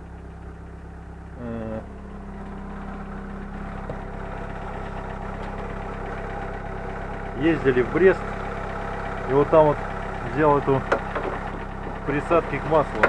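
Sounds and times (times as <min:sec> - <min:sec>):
car engine idling: 0:00.0 - 0:13.0
valve lifter rattle: 0:03.3 - 0:13.0.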